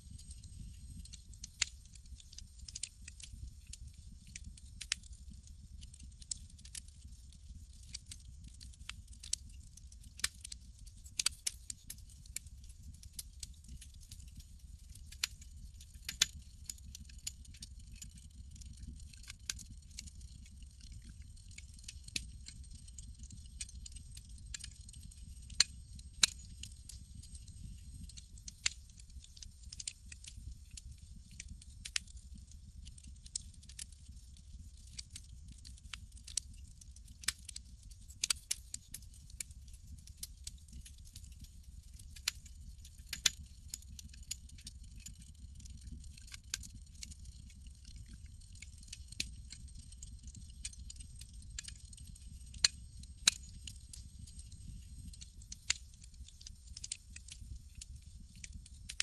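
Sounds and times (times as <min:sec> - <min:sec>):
campfire crackling and popping: 0:00.1 - 0:59.0.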